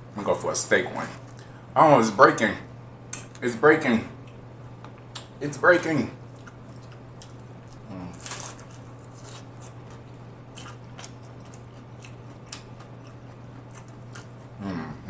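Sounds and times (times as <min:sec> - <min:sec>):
short vocal sound: 0:00.7 - 0:01.2, 0:14.6 - 0:15.0
chewing crunchy taco: 0:06.2 - 0:15.0.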